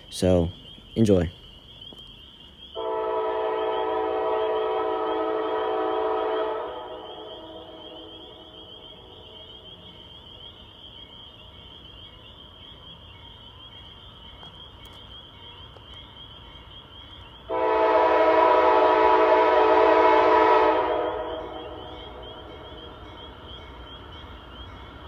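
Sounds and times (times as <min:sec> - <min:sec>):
night insects chirring: 0:00.0 - 0:25.0
locomotive air horn blast: 0:02.8 - 0:07.8, 0:17.5 - 0:22.2.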